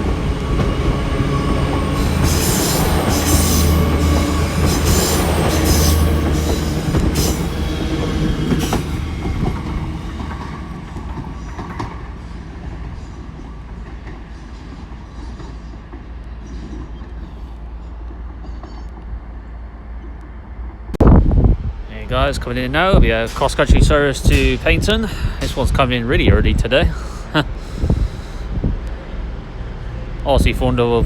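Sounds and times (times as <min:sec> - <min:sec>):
train engine hum: 0:00.0 - 0:31.0
train wheels rumbling: 0:00.0 - 0:31.0.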